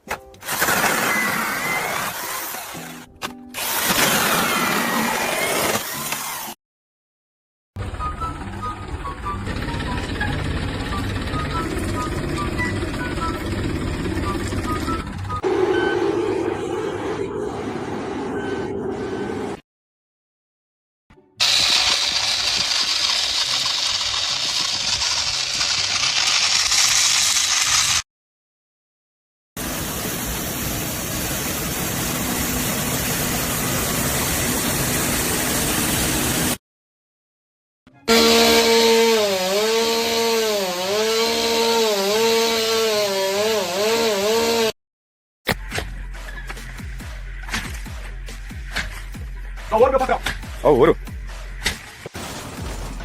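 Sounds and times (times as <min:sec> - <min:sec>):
power saw cutting: 0:00.4 - 0:06.6, 0:21.4 - 0:28.0, 0:38.1 - 0:44.8.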